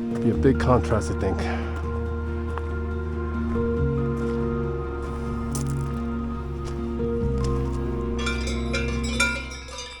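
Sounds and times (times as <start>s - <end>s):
cowbells clanking: 8.1s - 10.0s.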